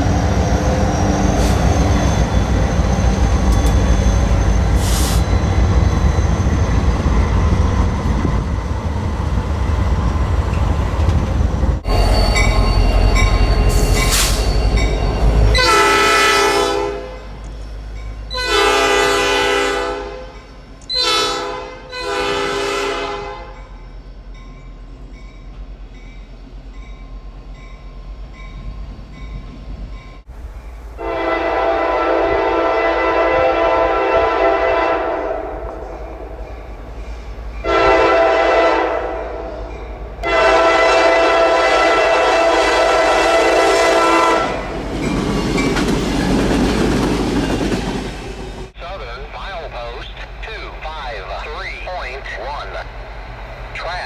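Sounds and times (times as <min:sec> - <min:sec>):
heavy train rumble: 0:00.0 - 0:54.0
locomotive air horn: 0:15.3 - 0:17.3, 0:18.3 - 0:23.7, 0:31.0 - 0:35.6, 0:37.6 - 0:39.6, 0:40.2 - 0:44.7.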